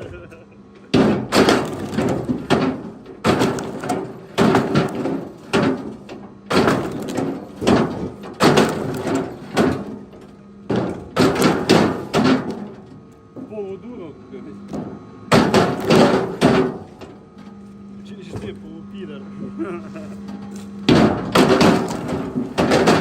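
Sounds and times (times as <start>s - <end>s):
wooden thuds with rattle: 0.9s - 13.5s, 14.7s - 17.2s, 20.8s - 23.0s.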